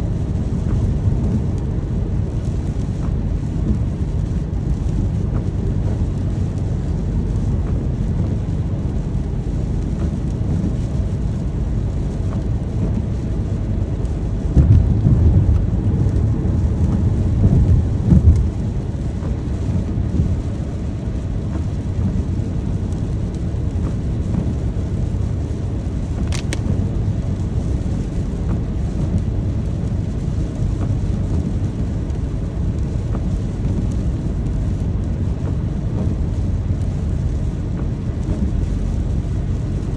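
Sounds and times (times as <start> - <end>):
steady rain: 0.0 - 39.9
thunder rolling: 13.6 - 20.6.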